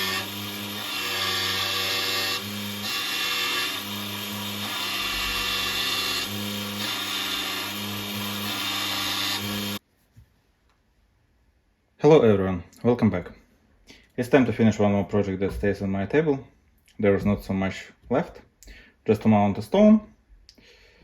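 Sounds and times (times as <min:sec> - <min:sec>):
power tool grinding hiss: 0:00.0 - 0:09.8.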